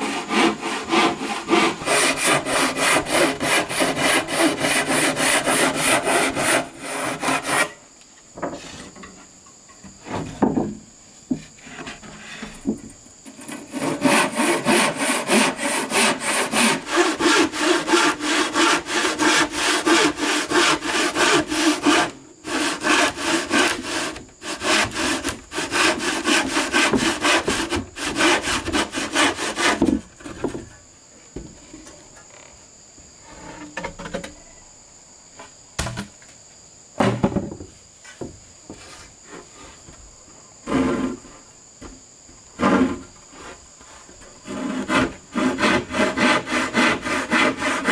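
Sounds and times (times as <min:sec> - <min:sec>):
handsaw cutting wood: 0:00.0 - 0:07.8, 0:13.3 - 0:29.9, 0:40.7 - 0:41.2, 0:42.6 - 0:43.0, 0:44.4 - 0:47.9
high insect drone: 0:00.0 - 0:47.9
wood knocks: 0:09.7 - 0:11.5.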